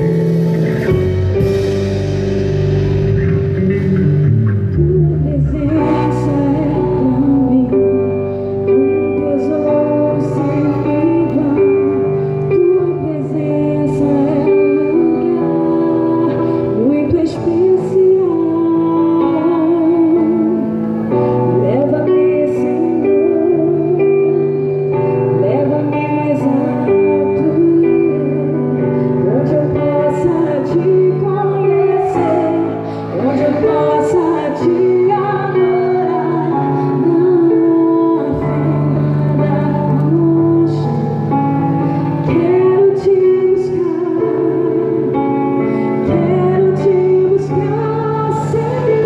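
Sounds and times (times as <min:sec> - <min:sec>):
worship band playing: 0:00.0 - 0:49.0
person singing with vibrato: 0:03.4 - 0:49.0.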